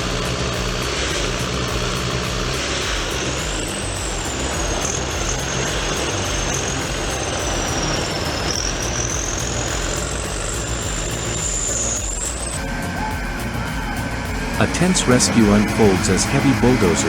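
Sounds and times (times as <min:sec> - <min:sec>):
diesel machinery engine rumble: 0:00.0 - 0:17.0.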